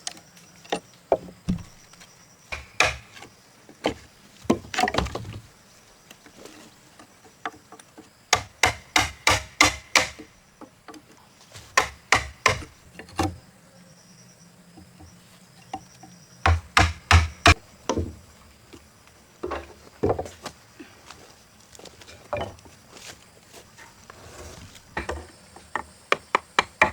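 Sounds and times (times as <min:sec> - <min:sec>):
tool striking timber: 0:01.2 - 0:01.8, 0:02.5 - 0:03.3, 0:08.3 - 0:10.3, 0:11.7 - 0:13.3, 0:16.5 - 0:18.2, 0:25.0 - 0:26.9.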